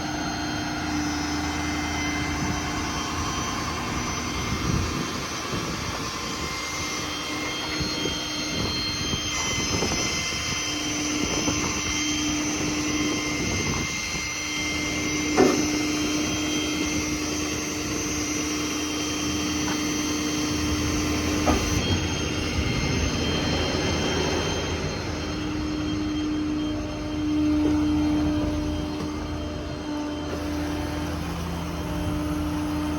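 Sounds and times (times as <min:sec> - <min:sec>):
hydraulic whine: 0:00.0 - 0:32.9
diesel engine running: 0:11.2 - 0:32.9.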